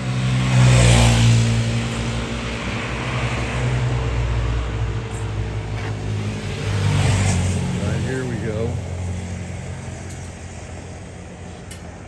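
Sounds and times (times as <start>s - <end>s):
passing traffic rush: 0.0s - 12.0s
vehicle engine running: 1.4s - 12.0s.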